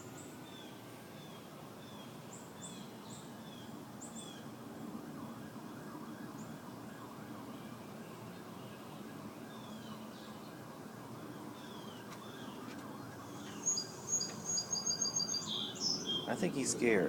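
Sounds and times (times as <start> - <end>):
small bird chirping: 11.6 - 16.4.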